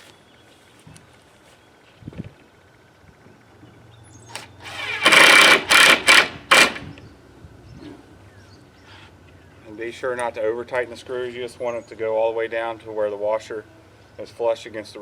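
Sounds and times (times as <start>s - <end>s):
power drill driving screw: 4.3s - 7.0s.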